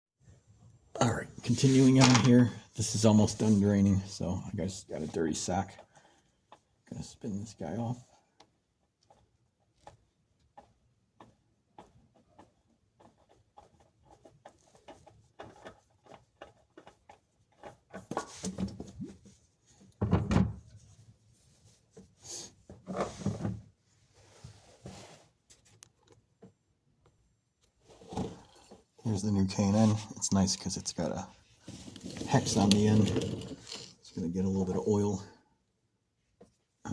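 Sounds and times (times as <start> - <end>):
knocks and clunks: 20.0 - 20.7
light clicks and scrapes: 27.8 - 34.8.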